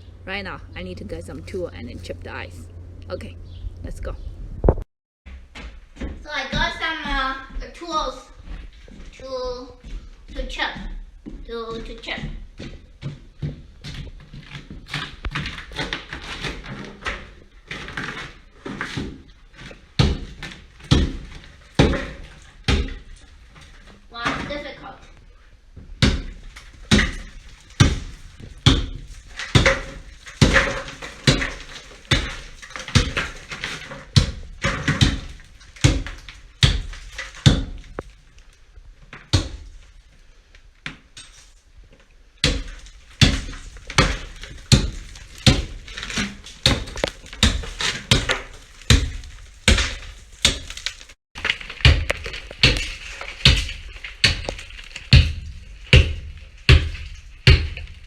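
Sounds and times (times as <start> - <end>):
hand tool chipping ice: 14.4 - 24.8, 26.0 - 38.0, 42.4 - 58.0.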